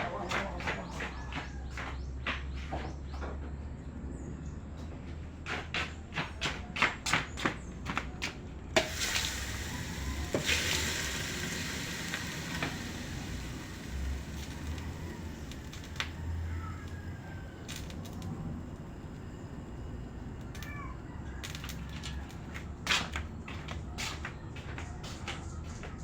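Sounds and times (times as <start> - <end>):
welding arc crackling and sizzling: 8.8 - 23.8.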